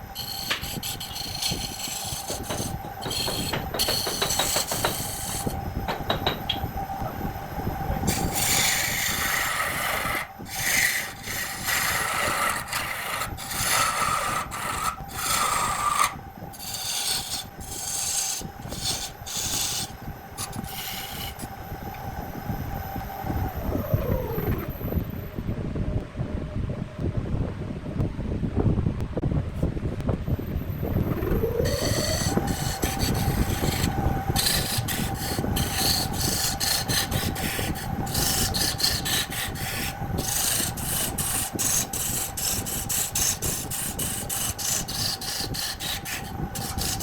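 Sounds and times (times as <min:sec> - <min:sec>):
tool scraping spinning wood: 0:00.0 - 0:06.6, 0:08.0 - 0:21.6, 0:31.1 - 0:47.0
wood lathe motor whine: 0:00.0 - 0:25.2, 0:30.5 - 0:47.0.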